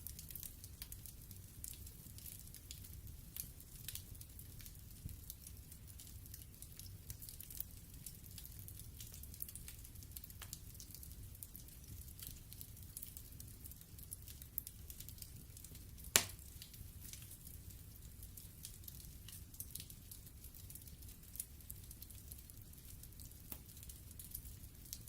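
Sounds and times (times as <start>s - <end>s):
wood fire crackling: 0.0s - 25.0s
sharp pop of fire: 16.1s - 16.5s.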